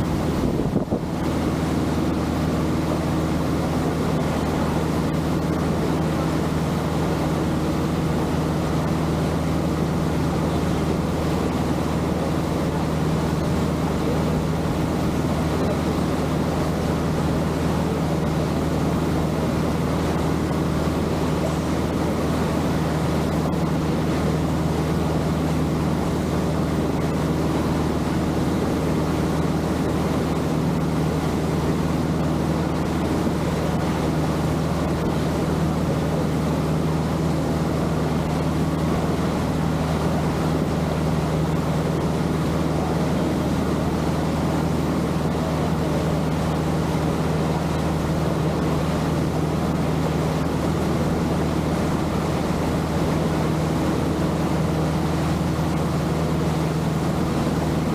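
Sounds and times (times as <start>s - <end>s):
wind noise: 0.0s - 1.3s
boat engine running: 0.0s - 57.9s
water noise: 0.0s - 57.9s.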